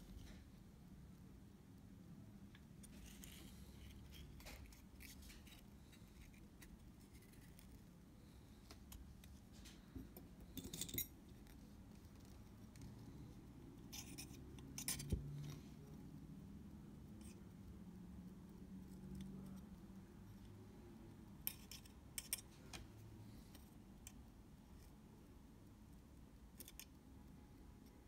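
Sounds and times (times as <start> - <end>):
scratchy handling: 2.6 - 9.9
small hand tools clicking and scraping: 10.4 - 15.8, 21.4 - 24.2, 26.6 - 27.0.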